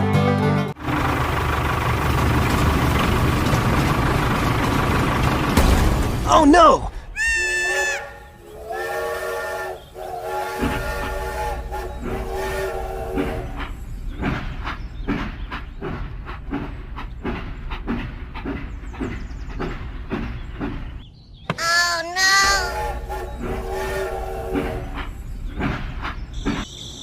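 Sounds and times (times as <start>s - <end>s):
steam train chuffing: 0.8s - 6.2s, 6.9s - 21.0s, 22.2s - 27.0s
steam train whistle: 7.2s - 13.8s, 22.4s - 25.2s.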